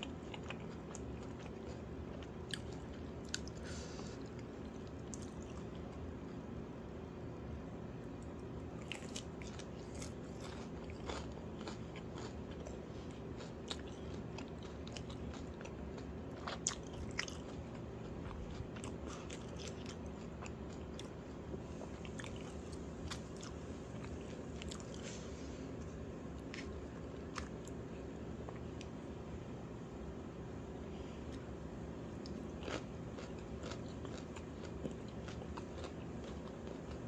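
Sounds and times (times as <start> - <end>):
person chewing food: 0.0 - 6.5, 8.2 - 29.2, 31.2 - 37.0
steady low hum: 0.0 - 37.0.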